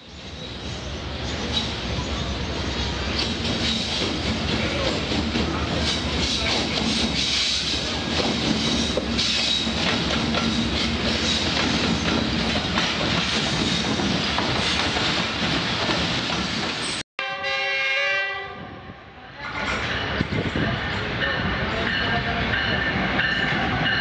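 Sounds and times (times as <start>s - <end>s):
train wheels clattering on rail joints: 3.0s - 16.8s.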